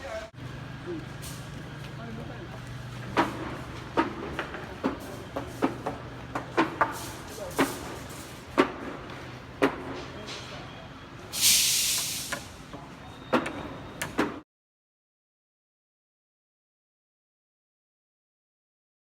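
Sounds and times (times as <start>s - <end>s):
heavy vehicle humming: 0.0s - 14.4s
sharp knocks and clanks: 3.0s - 10.6s
air brake hiss: 11.3s - 12.6s.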